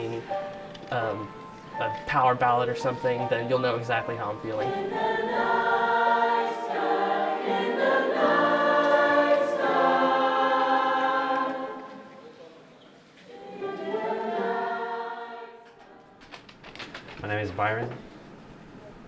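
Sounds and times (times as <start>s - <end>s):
choir singing in harmony: 2.7s - 12.3s, 13.2s - 16.2s.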